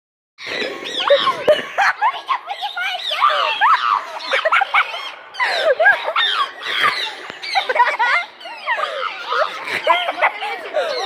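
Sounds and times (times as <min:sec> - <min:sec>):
chickens clucking: 0:00.4 - 0:03.4.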